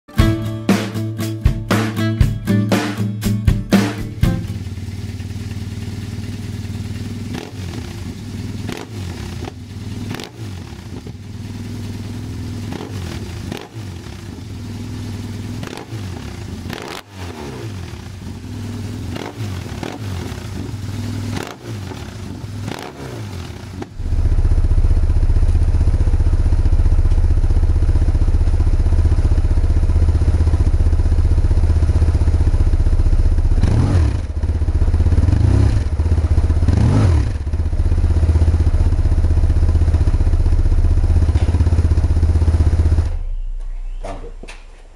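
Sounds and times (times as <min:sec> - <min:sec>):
engine throttle blips: 0:04.1 - 0:29.5
motorcycle engine idling: 0:04.1 - 0:44.9.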